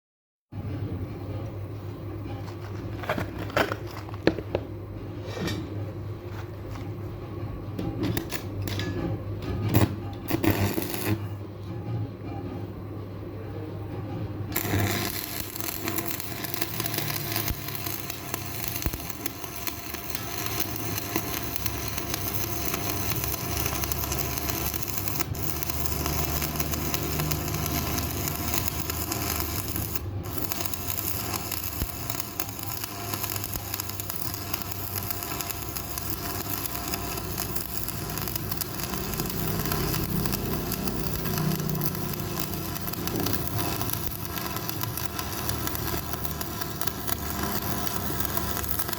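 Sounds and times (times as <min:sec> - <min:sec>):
welding arc crackling hiss: 0:09.8 - 0:11.3, 0:14.6 - 0:48.9.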